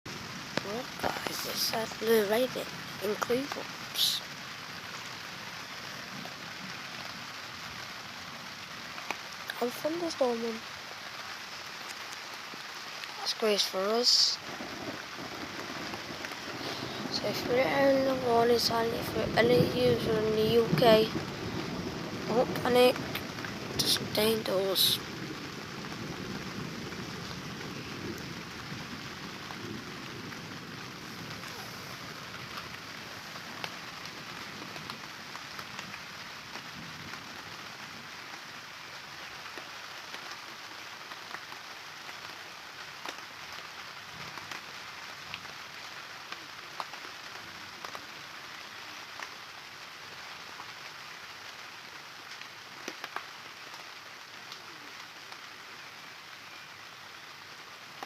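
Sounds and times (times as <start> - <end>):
raindrops ticking nearby: 0.1 - 58.0
steady rain hiss: 0.1 - 58.0.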